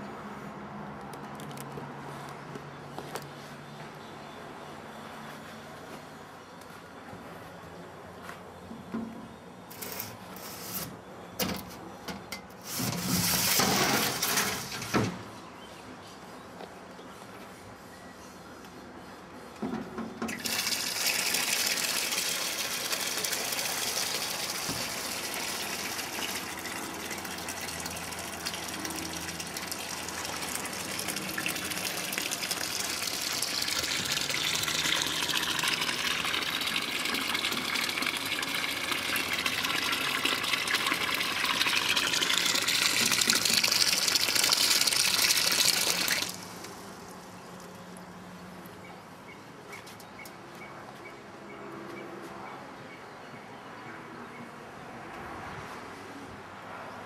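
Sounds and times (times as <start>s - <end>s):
water gushing: 12.7s - 14.9s, 20.3s - 47.6s.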